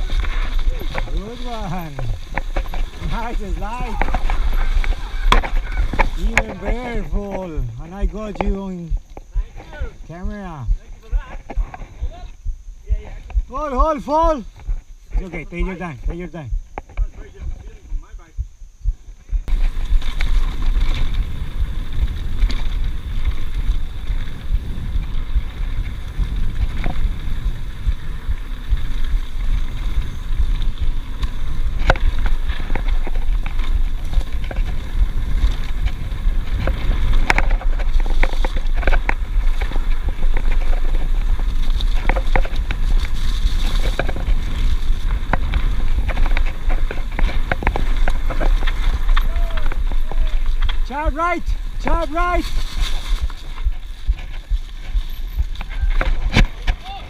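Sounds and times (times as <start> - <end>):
bike and chain rattling: 0.0 - 12.2, 19.5 - 57.0
wind buffeting microphone: 0.0 - 57.0.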